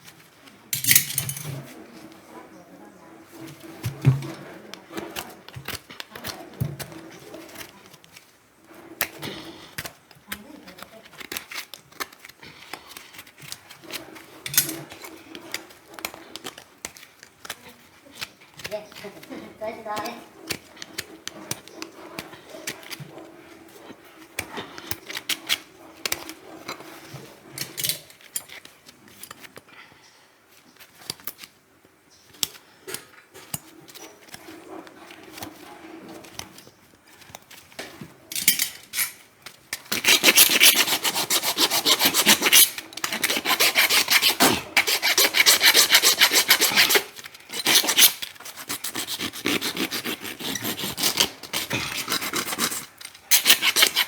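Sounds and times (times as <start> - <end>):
rasp filing a hoof: 3.3 - 28.7, 33.5 - 36.6, 39.7 - 54.0.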